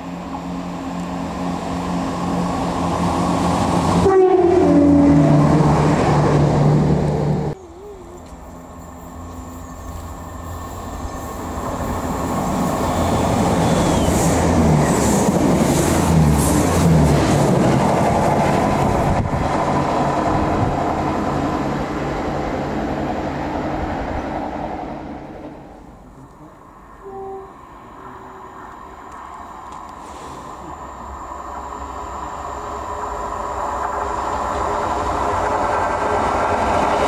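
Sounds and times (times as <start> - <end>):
diesel train engine hum: 0.0 - 37.0
wheel noise on rails: 0.0 - 37.0
short tone: 27.0 - 28.6.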